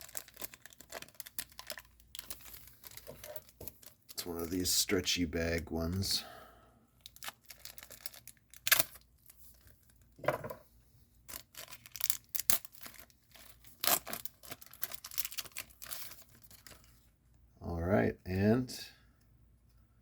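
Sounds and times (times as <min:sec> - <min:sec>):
plastic wrapper crinkling and tearing: 0:00.0 - 0:04.8, 0:07.0 - 0:10.2, 0:11.2 - 0:17.1.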